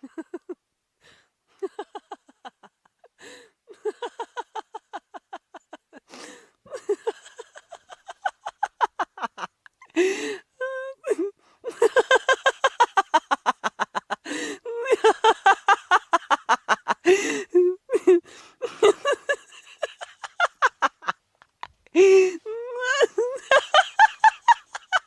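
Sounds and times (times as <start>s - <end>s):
person laughing hard: 0.0s - 0.6s, 1.6s - 25.0s
gasping in-breaths: 3.2s - 3.6s, 6.1s - 6.6s, 9.9s - 10.6s, 14.2s - 14.7s, 17.0s - 17.6s, 18.2s - 18.7s.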